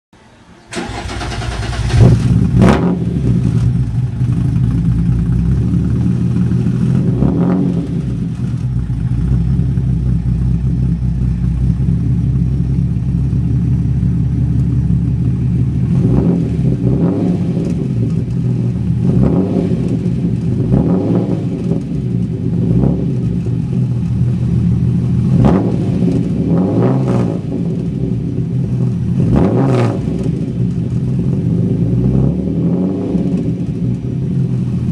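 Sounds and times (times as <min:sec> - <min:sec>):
car engine starting and idling: 0:00.2 - 0:34.9
engine revving: 0:00.7 - 0:10.1, 0:15.7 - 0:24.4, 0:25.1 - 0:34.0.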